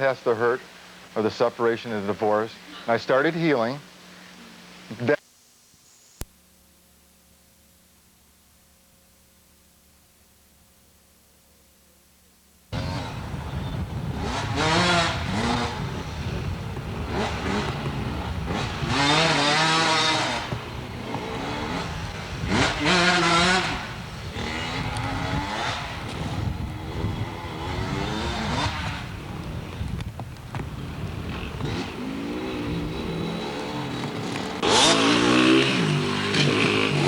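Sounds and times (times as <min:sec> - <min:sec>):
dirt bike engines revving: 0:12.7 - 0:37.0.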